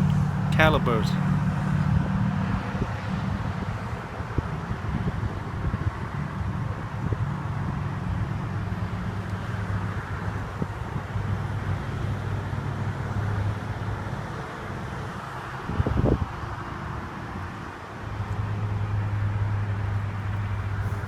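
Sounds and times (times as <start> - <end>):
vehicle traffic hum: 0.0 - 1.9, 20.0 - 21.0.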